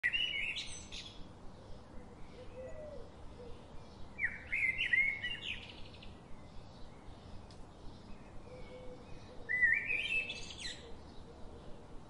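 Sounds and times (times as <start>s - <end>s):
faint outdoor hiss: 0.0s - 12.0s
songbird chirping: 0.0s - 12.0s.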